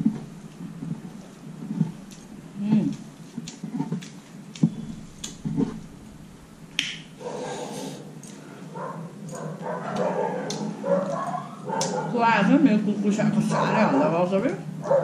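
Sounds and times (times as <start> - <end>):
lip smacks and chewing: 0.0 - 5.8, 8.2 - 8.6, 9.2 - 12.1
whiny pitched sound: 4.6 - 7.2.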